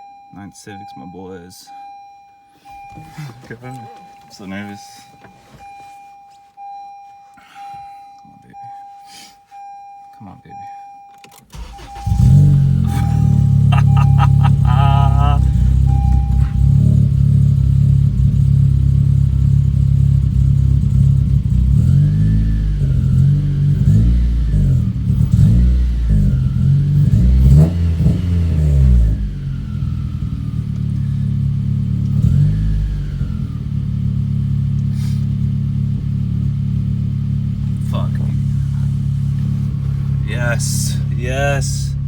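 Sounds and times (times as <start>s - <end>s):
car engine idling and revving: 11.3s - 42.0s.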